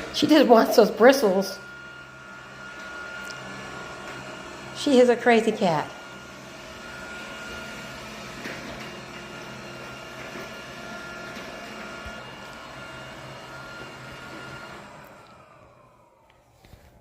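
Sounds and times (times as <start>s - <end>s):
robot vacuum motor whine: 0.0s - 16.9s.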